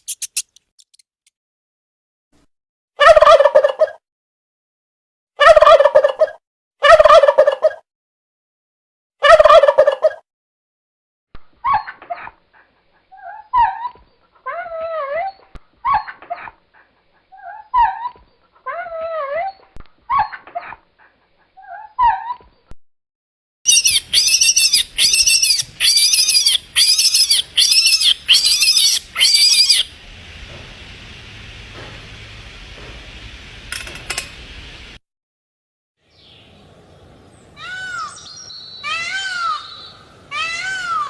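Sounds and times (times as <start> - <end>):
animal whining yelping calls: 23.7 - 29.9
shrill repeated animal calls: 23.7 - 29.9.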